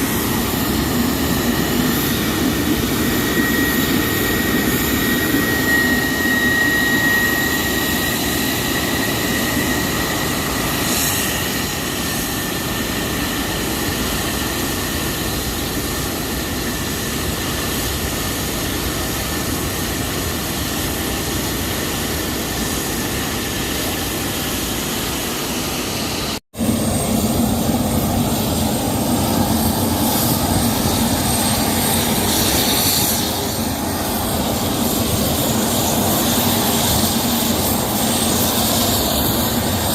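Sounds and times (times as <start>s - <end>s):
jet engines roaring and whining: 0.0s - 39.9s.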